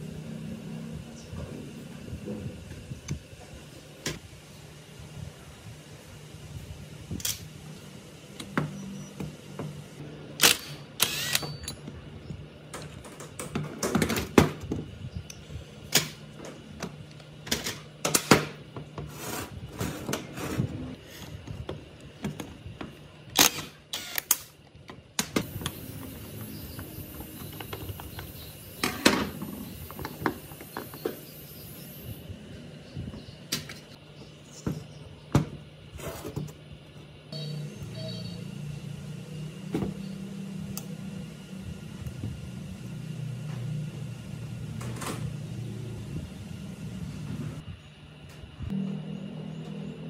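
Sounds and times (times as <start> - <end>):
tools and metal parts clicking: 10.5 - 11.9.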